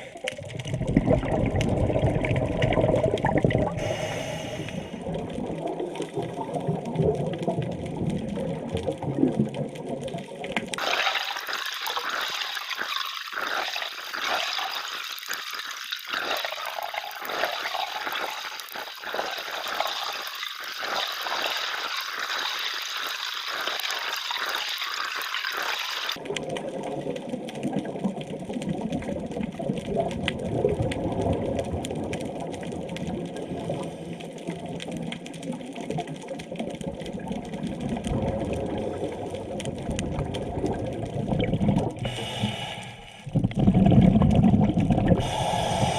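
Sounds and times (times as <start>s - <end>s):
wash of moving water: 0.0s - 45.9s
underwater hiss with crackle: 3.3s - 6.4s, 10.5s - 26.7s, 31.8s - 36.7s, 42.0s - 43.6s, 45.1s - 45.9s.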